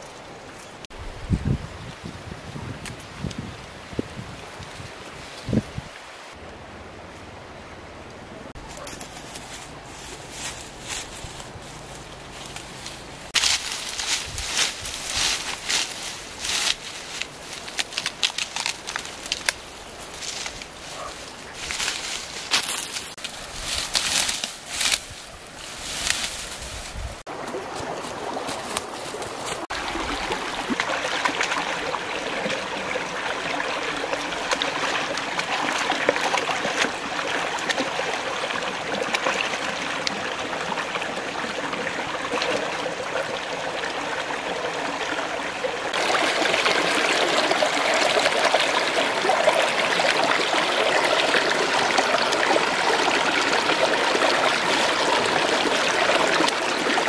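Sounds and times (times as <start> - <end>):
water running and trickling: 27.3 - 57.0.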